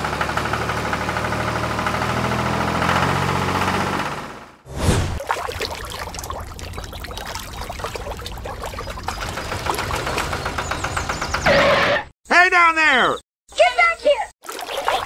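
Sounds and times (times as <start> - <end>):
water trickling and splashing: 5.1 - 11.0, 14.4 - 15.0.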